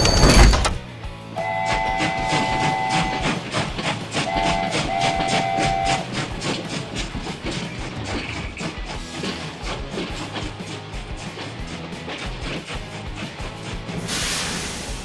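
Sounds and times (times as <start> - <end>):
diesel train horn chord: 1.3 - 6.3
wheels clacking over rail joints: 1.4 - 14.2.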